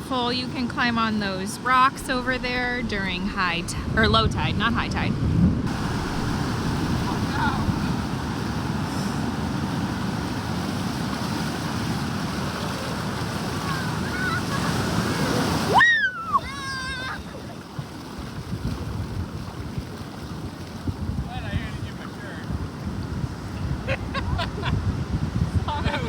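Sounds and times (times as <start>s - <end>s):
surf breaking on beach: 0.0s - 26.0s
wind buffeting microphone: 0.0s - 26.0s
wavering high cries: 15.7s - 17.2s.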